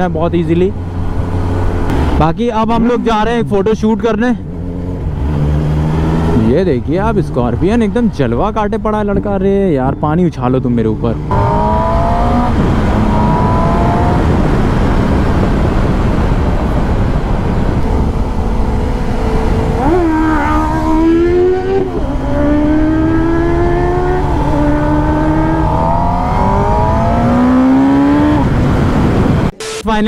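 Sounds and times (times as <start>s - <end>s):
wind and road noise: 0.0s - 30.0s
motorcycle engine revving through gears: 4.4s - 6.6s, 11.0s - 29.5s.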